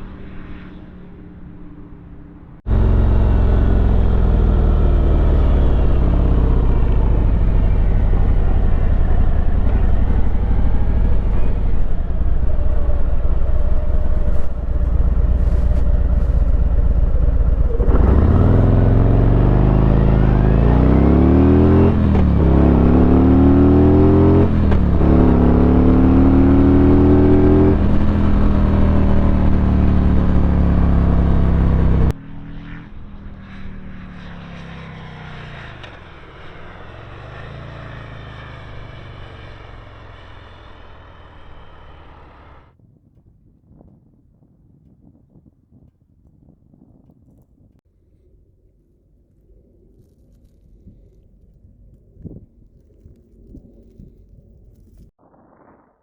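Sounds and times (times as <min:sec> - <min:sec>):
motorcycle engine accelerating: 0:00.0 - 0:42.8.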